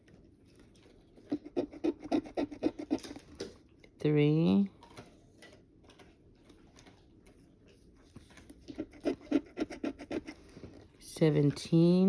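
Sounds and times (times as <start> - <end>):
lottery ticket being scratched: 1.3 - 3.2, 8.7 - 10.4.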